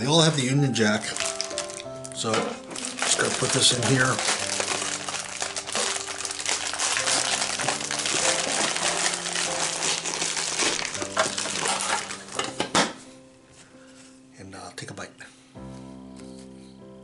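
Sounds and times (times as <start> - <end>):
plastic wrapper crinkling: 0.1 - 12.7.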